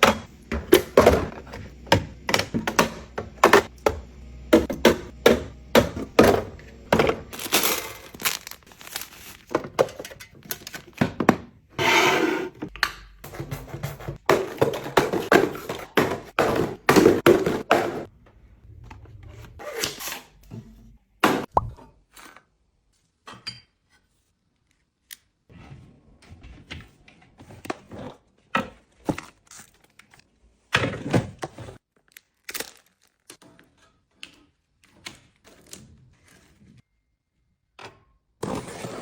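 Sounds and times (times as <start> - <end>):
household items knocking and clunking: 0.0 - 11.7, 12.6 - 18.1.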